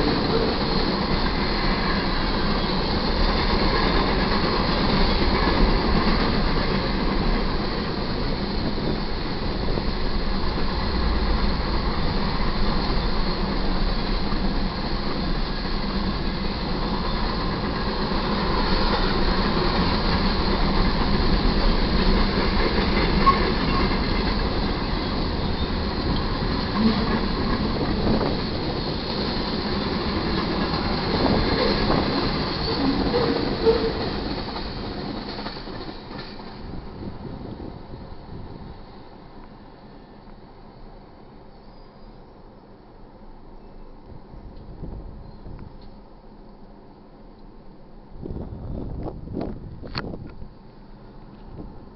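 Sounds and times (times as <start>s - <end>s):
freight train wheels clattering: 0.0s - 37.2s.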